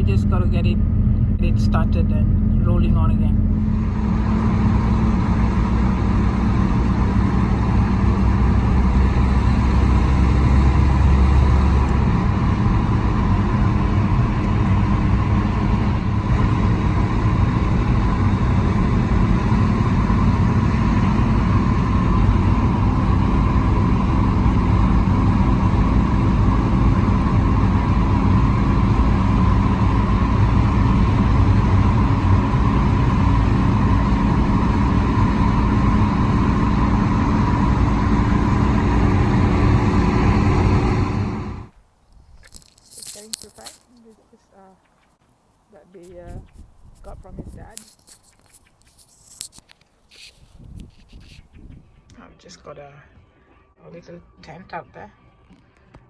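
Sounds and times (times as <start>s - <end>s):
deep rumble: 0.0s - 41.7s, 46.0s - 47.8s
car engine and tyre noise: 0.0s - 52.1s.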